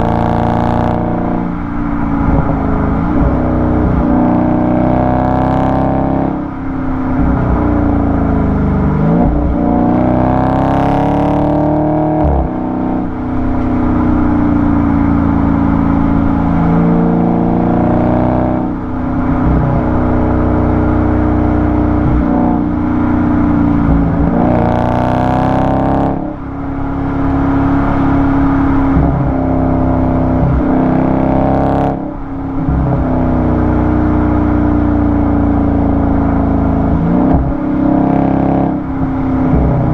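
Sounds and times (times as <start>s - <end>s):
car exhaust revving: 0.0s - 39.9s.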